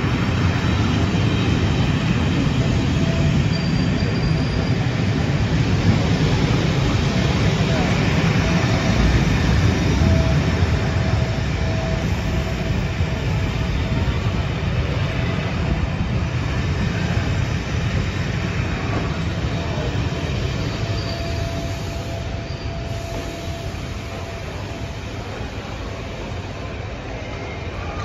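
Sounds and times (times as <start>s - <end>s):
train wheels rumbling on rails: 0.0s - 28.0s
faint wheel squeal: 2.7s - 6.5s, 18.8s - 28.0s.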